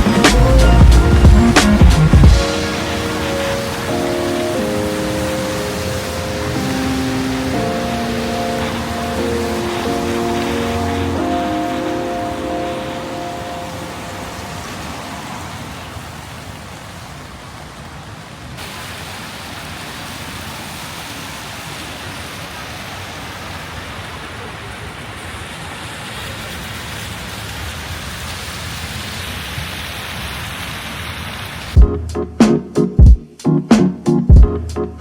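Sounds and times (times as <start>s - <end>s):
heavy rain falling: 0.0s - 31.8s.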